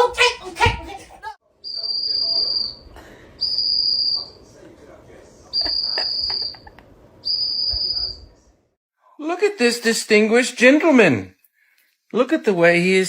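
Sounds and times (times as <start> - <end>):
high steady whistle tone: 1.6 - 2.8, 3.4 - 4.4, 5.6 - 6.6, 7.2 - 8.3.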